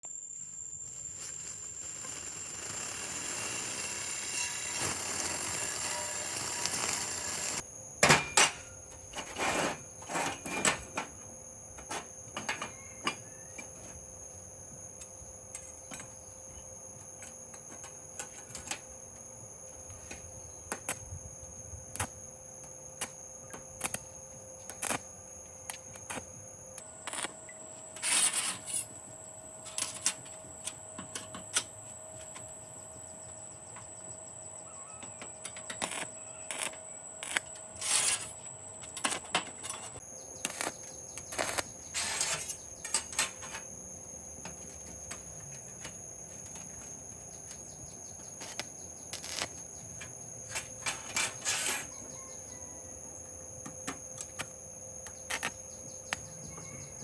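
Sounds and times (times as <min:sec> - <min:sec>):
clicks and knocks of small tools: 0:35.0 - 0:41.6.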